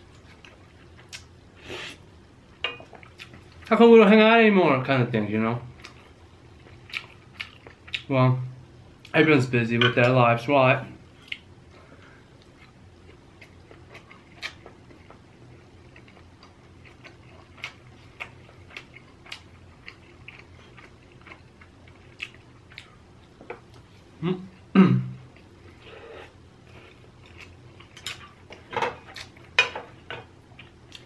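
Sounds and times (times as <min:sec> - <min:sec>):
person chewing: 0:00.1 - 0:02.0, 0:02.7 - 0:03.7, 0:05.8 - 0:08.1, 0:12.4 - 0:23.8, 0:25.3 - 0:29.6
low vocal sounds: 0:24.2 - 0:25.2.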